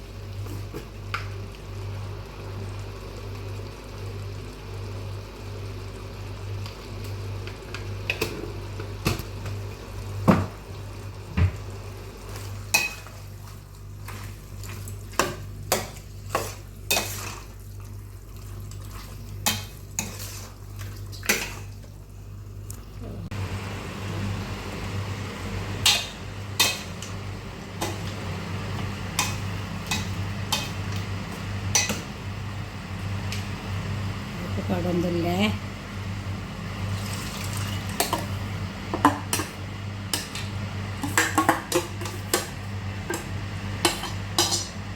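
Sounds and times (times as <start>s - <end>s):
steady low hum: 0.0s - 44.9s
metal spoon scraping pan: 19.5s - 20.6s.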